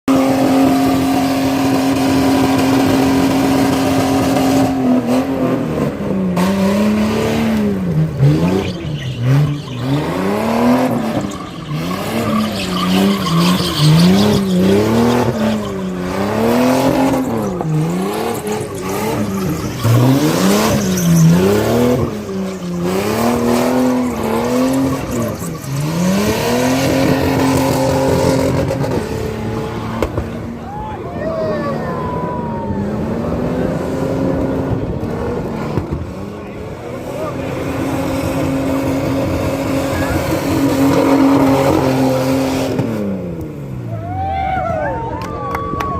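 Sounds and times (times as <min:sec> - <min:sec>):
vehicle engine revving: 0:00.0 - 0:30.6.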